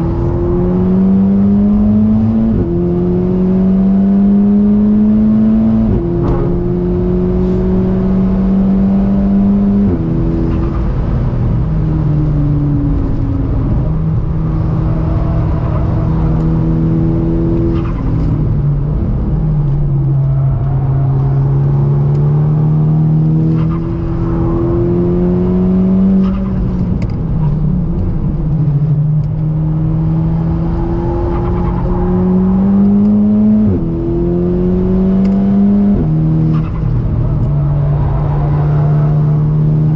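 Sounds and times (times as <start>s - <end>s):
car engine pulling hard: 0.0s - 39.9s.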